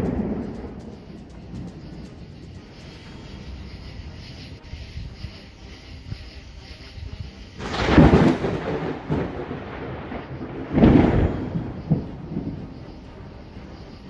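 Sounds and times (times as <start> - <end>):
thunder claps rumbling: 0.0 - 4.1, 7.6 - 14.0.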